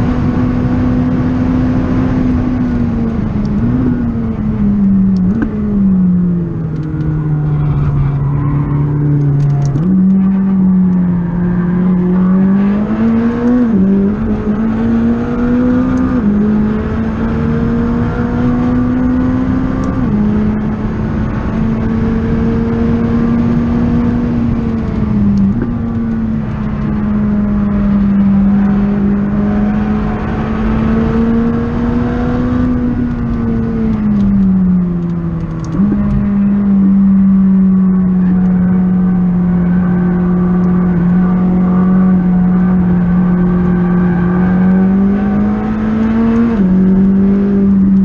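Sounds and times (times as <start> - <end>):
car engine under power: 0.0 - 48.0.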